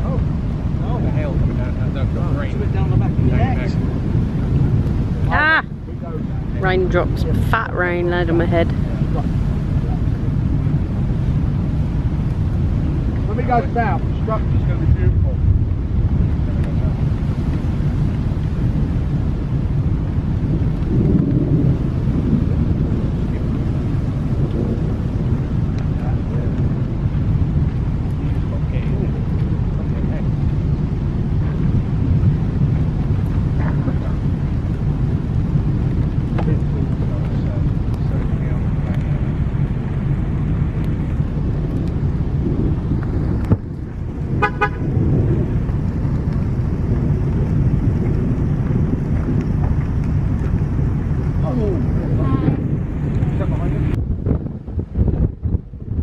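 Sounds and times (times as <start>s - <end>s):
low rumble of thunder: 0.0s - 56.0s
wind buffeting microphone: 0.0s - 56.0s
car horn beeps: 44.4s - 44.9s.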